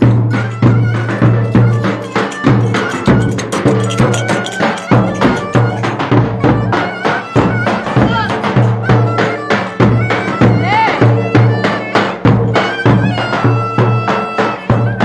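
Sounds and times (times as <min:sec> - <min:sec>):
sharp percussion beats: 0:00.0 - 0:15.0
high wavering melody: 0:00.4 - 0:10.6.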